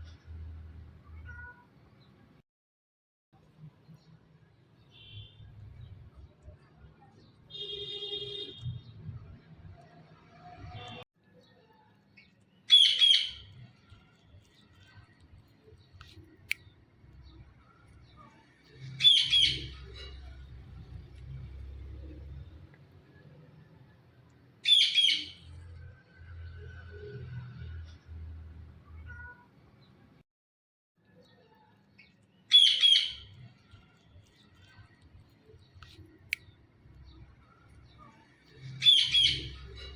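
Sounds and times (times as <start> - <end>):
parakeet call: 12.7 - 13.5, 19.0 - 19.8, 24.6 - 25.4, 32.5 - 33.3, 38.8 - 39.7.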